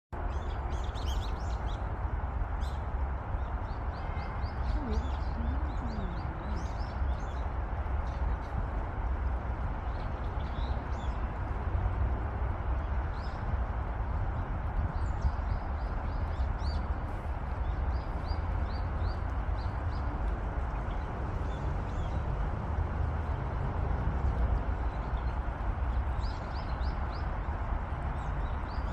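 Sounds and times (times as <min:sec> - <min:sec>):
small birds chirping: 0:00.2 - 0:09.0
faint low gliding voice: 0:04.6 - 0:06.9
wind on microphone: 0:07.9 - 0:28.9.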